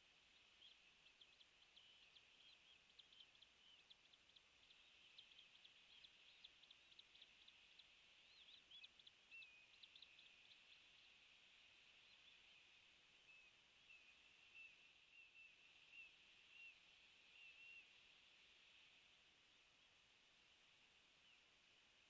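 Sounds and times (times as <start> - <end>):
low steady hiss: 0.0 - 22.0.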